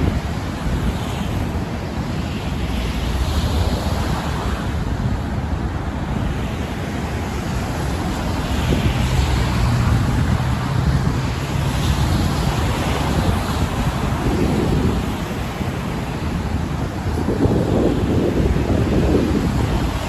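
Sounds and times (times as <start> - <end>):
wind buffeting microphone: 0.0 - 20.0
road traffic rushing: 2.5 - 20.0
low engine hum: 7.1 - 15.6.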